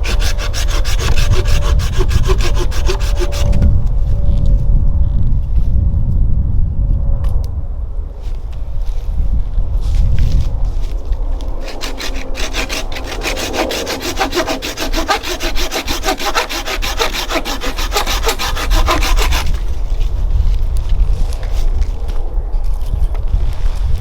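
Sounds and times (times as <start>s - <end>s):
hand saw cutting wood: 0.0s - 3.6s, 11.6s - 19.7s.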